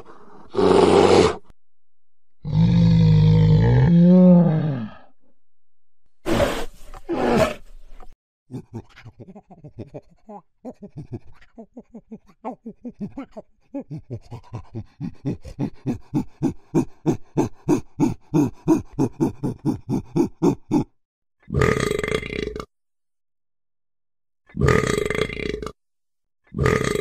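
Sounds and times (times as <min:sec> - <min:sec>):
animal grunting rhythmically: 0:02.4 - 0:05.1, 0:08.5 - 0:22.7, 0:24.5 - 0:25.8, 0:26.5 - 0:27.0
animal roaring: 0:02.4 - 0:05.1.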